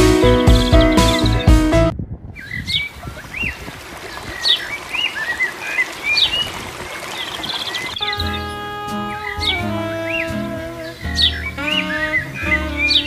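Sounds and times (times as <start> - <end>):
small birds chirping: 0.0 - 1.8, 2.4 - 13.0
music: 0.0 - 1.9, 8.0 - 13.0
steady outdoor hiss: 2.8 - 13.0.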